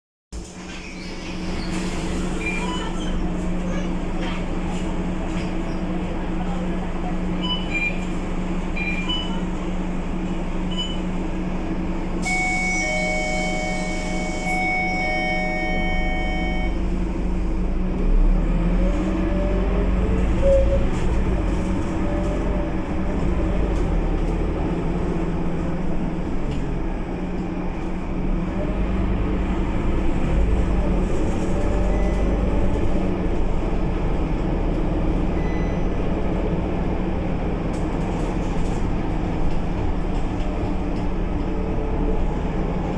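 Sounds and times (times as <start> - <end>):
bus diesel engine: 0.4 - 42.9
electronic warning tone: 12.2 - 16.8.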